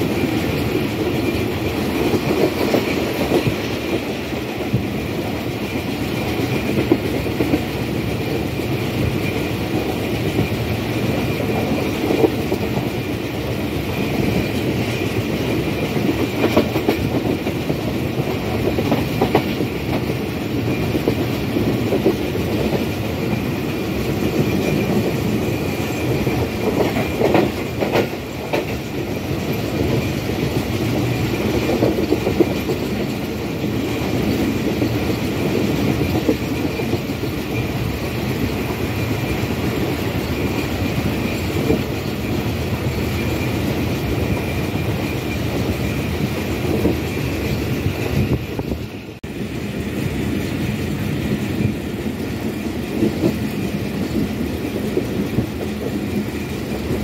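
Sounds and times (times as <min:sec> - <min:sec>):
train clanks: 0:00.0 - 0:57.0
train wheels rumbling on track: 0:00.0 - 0:57.0.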